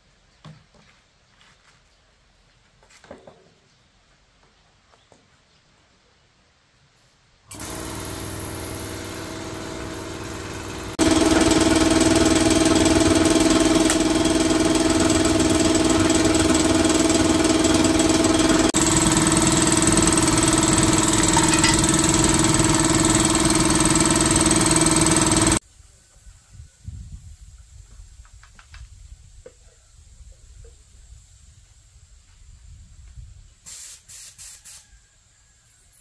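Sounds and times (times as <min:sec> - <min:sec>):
motor humming: 0:07.5 - 0:25.6.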